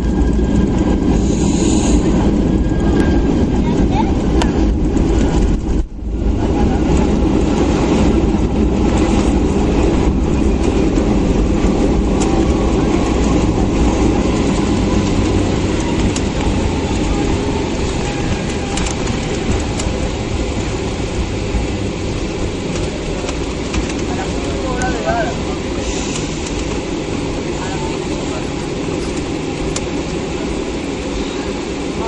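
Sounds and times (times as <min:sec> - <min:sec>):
jet engines running: 0:00.0 - 0:32.0.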